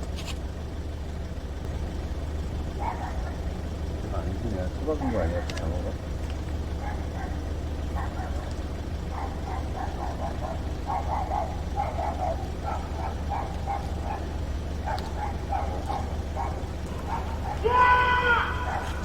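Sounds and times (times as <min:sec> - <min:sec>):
steady low hum: 0:00.6 - 0:17.7
dog barking: 0:02.7 - 0:03.6, 0:06.7 - 0:19.0.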